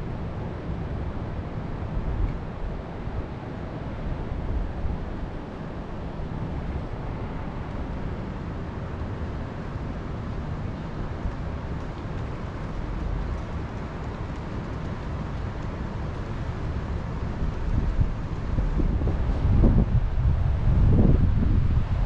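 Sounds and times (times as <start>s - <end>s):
wind buffeting microphone: 11.2s - 22.0s
wind blowing: 17.4s - 22.0s.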